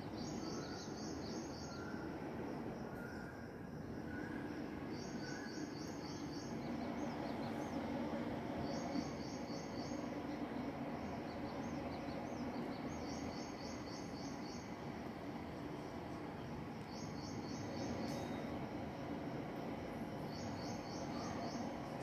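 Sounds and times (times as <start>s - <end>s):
bird chirping: 8.6s - 14.8s.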